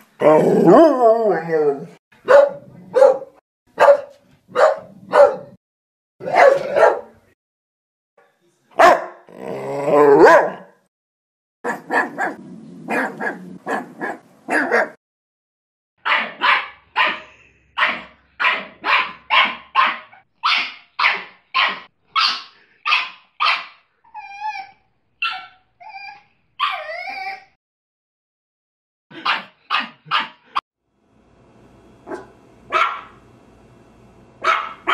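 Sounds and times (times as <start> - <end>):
dog barking: 2.2 - 5.6, 6.2 - 7.2, 8.8 - 9.3, 10.2 - 10.8, 11.6 - 15.0, 16.0 - 23.8, 29.1 - 30.6, 32.1 - 33.2, 34.4 - 34.9
dog yelping: 11.7 - 15.0, 17.8 - 27.6, 34.4 - 34.9.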